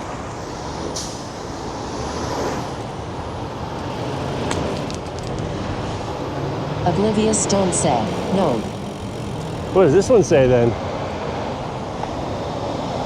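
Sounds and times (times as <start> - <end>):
city traffic noise: 0.0 - 13.0
brief hiss: 0.9 - 1.4.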